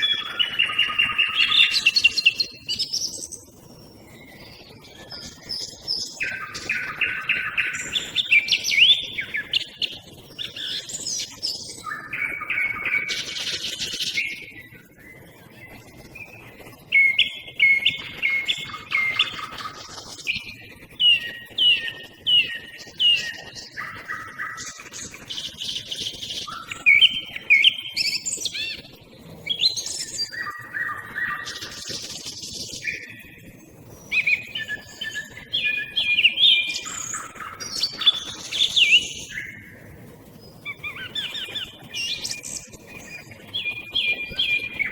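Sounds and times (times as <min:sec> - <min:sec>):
nightingale singing: 0:00.0 - 0:03.3, 0:04.1 - 0:14.4, 0:16.9 - 0:28.8, 0:34.1 - 0:39.6, 0:40.6 - 0:44.9
small birds calling: 0:00.0 - 0:03.4, 0:04.1 - 0:14.7, 0:16.2 - 0:28.9, 0:34.0 - 0:44.9
song thrush singing: 0:00.0 - 0:03.4, 0:04.1 - 0:15.1, 0:16.2 - 0:28.8, 0:34.0 - 0:39.7, 0:40.6 - 0:44.9.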